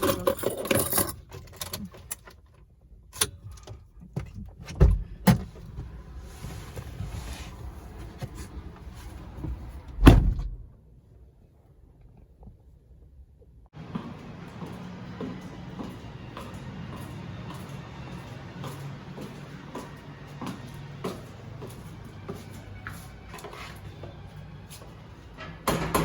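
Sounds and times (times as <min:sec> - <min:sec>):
car door shutting: 0:08.0 - 0:10.6.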